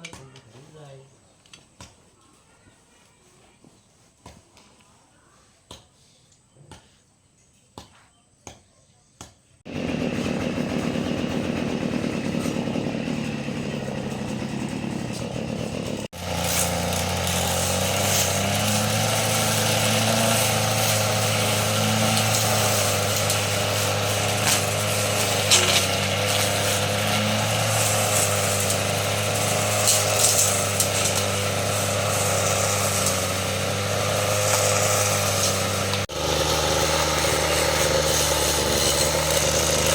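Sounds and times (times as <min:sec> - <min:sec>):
diesel engine running: 0:09.7 - 0:39.9.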